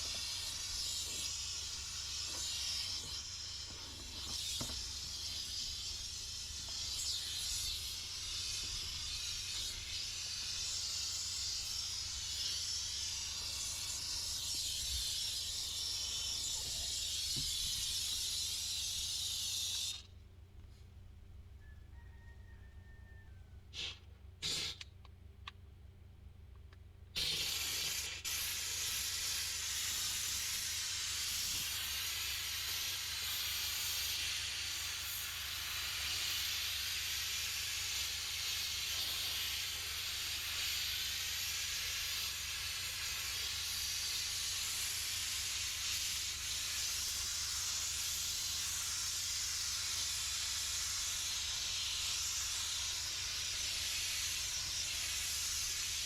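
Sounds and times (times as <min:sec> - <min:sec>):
steam cleaner hissing: 0:00.0 - 0:20.1, 0:23.8 - 0:24.8, 0:27.2 - 0:56.0
short clicks: 0:23.9 - 0:25.6.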